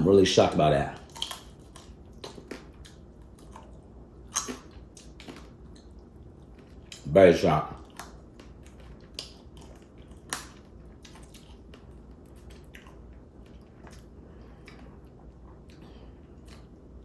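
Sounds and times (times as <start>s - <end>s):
crab shell cracking: 1.0s - 3.7s, 7.9s - 13.0s
wet chewing: 1.0s - 7.2s, 7.8s - 17.0s.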